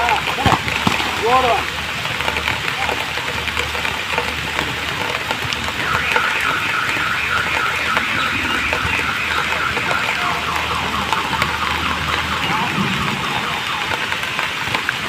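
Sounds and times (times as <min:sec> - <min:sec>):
rain falling: 0:00.0 - 0:15.0
high pulsing alarm tone: 0:05.7 - 0:14.6.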